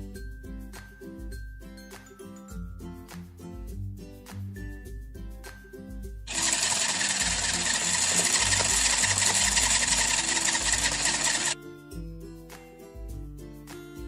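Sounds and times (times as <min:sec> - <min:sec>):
light background music: 0:00.0 - 0:14.0
toy appliance whirring: 0:06.3 - 0:11.6.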